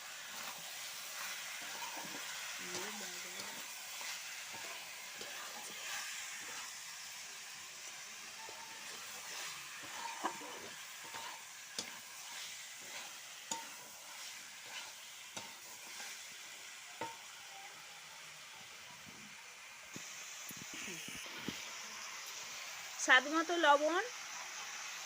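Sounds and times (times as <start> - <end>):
chicken sizzling in oil: 0.0 - 25.0
spoon knocking and scraping a pot: 1.6 - 6.7, 8.4 - 16.1.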